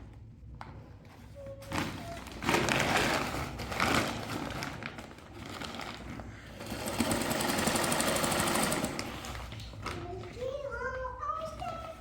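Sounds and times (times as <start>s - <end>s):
sewing machine stitching: 6.6s - 9.4s.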